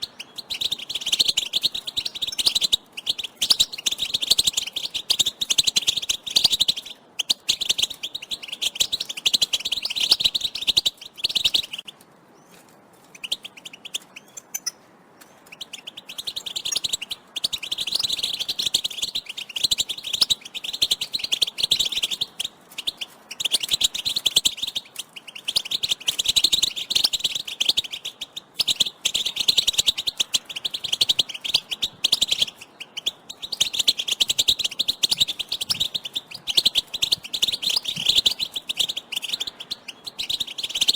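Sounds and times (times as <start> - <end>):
goldfinches twittering: 0.0 - 11.9, 15.4 - 40.9.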